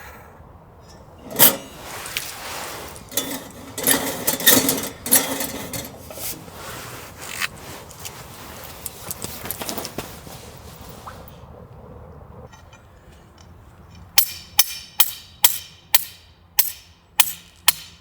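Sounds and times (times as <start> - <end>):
hands rustling and scraping objects: 1.2 - 11.3.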